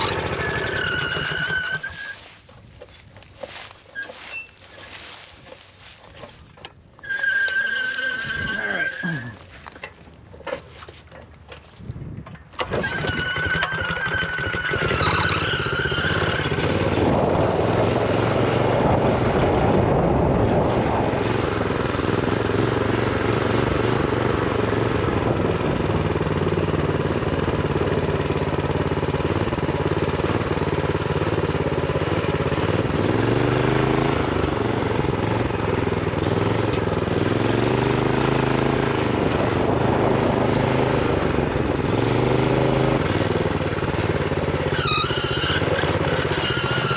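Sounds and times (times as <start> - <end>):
minibike engine revving: 0.0 - 11.0, 12.5 - 46.9.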